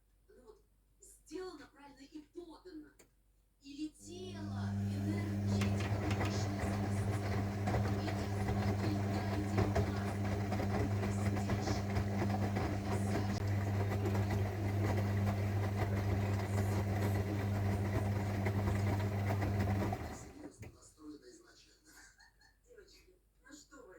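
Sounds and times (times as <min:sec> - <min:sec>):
washing machine motor humming: 0:04.0 - 0:20.8.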